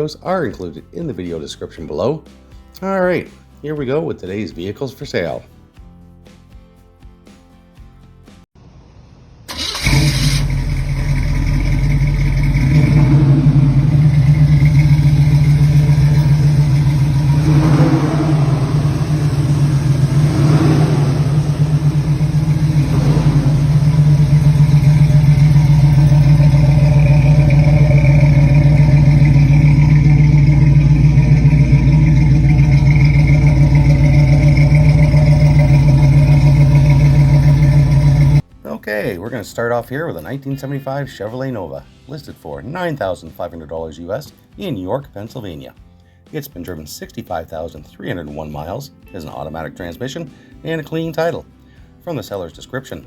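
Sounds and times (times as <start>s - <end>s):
car engine running: 9.5s - 38.4s
car engine cranking and starting: 9.5s - 38.5s.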